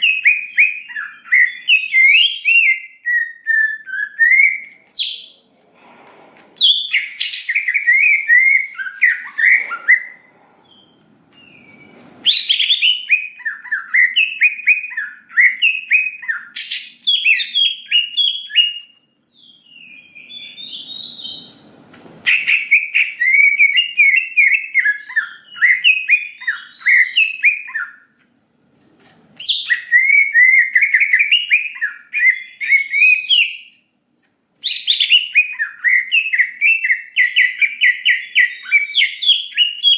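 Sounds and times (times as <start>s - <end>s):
bird chirping and whistling: 0.0s - 5.4s, 6.6s - 21.7s, 22.3s - 28.1s, 29.4s - 33.8s, 34.6s - 39.9s.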